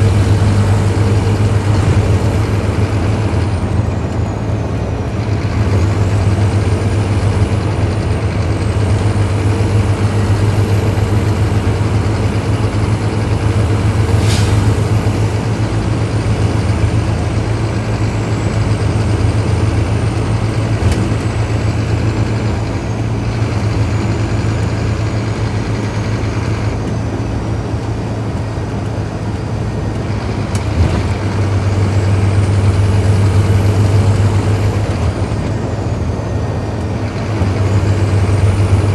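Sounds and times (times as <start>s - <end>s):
bus engine low drone: 0.0s - 38.9s.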